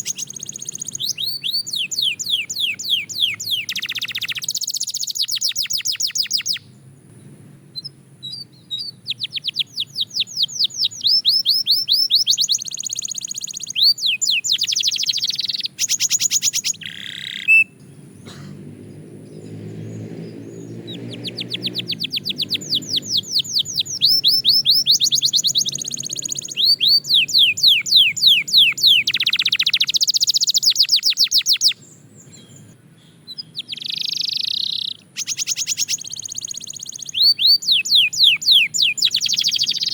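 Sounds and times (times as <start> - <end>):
canary singing trills: 0.0 - 7.1, 7.7 - 39.9.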